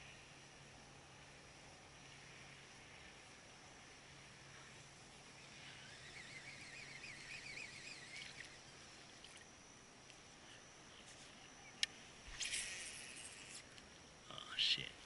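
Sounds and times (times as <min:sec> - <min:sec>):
faint bird trill: 0:05.4 - 0:09.4.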